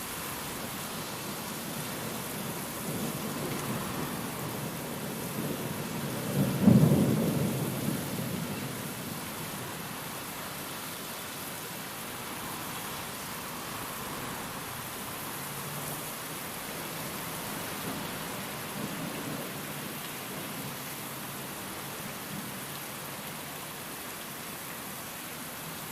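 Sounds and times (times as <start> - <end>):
heavy rain: 0.0 - 25.9
thunder rumbling: 2.4 - 9.1.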